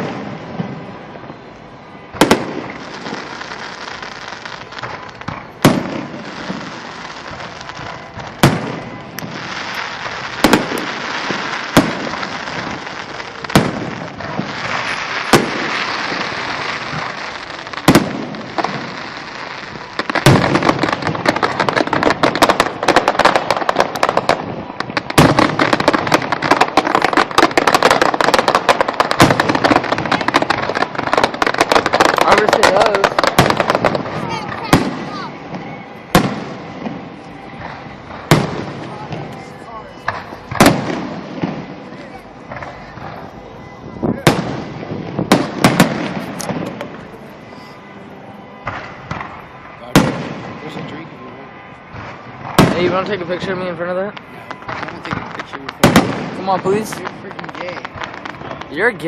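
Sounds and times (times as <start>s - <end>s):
firework crackling pops: 0.0s - 47.8s, 48.6s - 51.1s, 51.8s - 59.0s.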